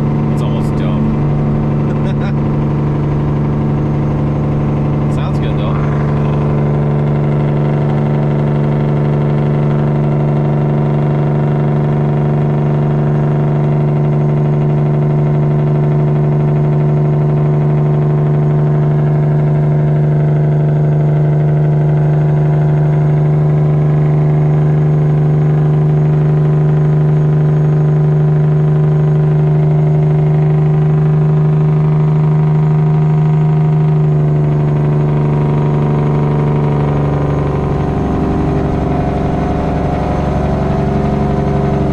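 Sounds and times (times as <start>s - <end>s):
diesel truck engine braking: 0.0s - 14.8s, 29.4s - 41.9s.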